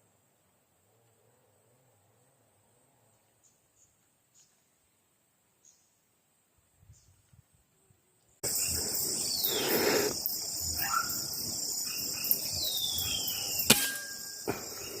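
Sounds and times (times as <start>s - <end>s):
insect chorus drone: 7.7s - 15.0s
sharp crack: 13.6s - 14.7s.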